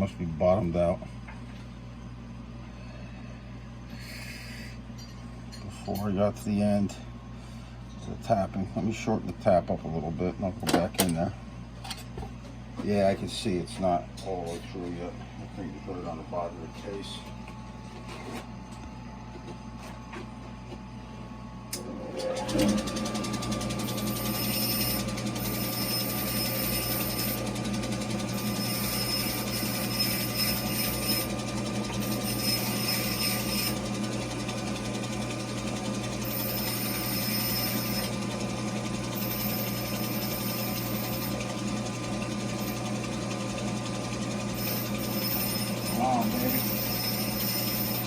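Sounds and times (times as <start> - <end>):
electric grinder running: 21.8 - 48.0
high hiss of metal grinding: 28.4 - 31.4, 32.0 - 33.9, 36.2 - 38.1, 44.6 - 48.0.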